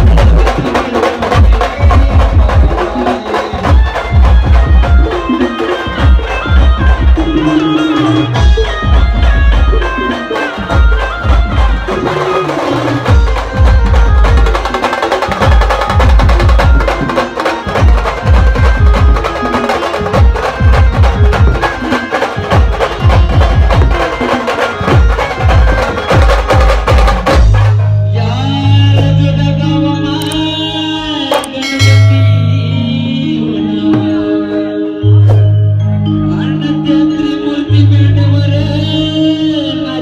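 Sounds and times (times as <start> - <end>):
fast heavy drumming: 0.0 - 27.9
keyboard melody: 0.0 - 40.0.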